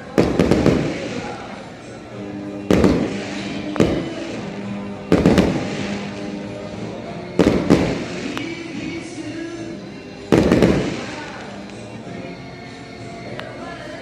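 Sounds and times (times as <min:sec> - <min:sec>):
music playing: 0:00.0 - 0:14.0
fireworks bangs: 0:00.1 - 0:01.7, 0:02.4 - 0:09.4, 0:10.3 - 0:11.7.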